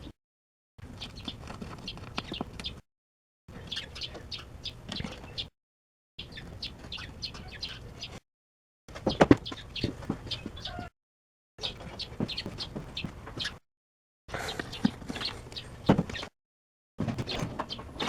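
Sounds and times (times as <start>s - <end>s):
birds chirping: 0.8s - 2.8s, 3.5s - 5.5s, 6.2s - 8.2s, 8.9s - 10.9s, 11.6s - 13.6s, 14.3s - 16.4s, 17.1s - 18.0s.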